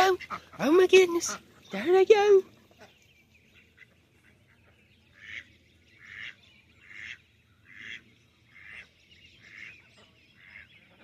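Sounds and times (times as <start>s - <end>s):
duck quacking: 0.0s - 1.8s, 5.2s - 8.0s.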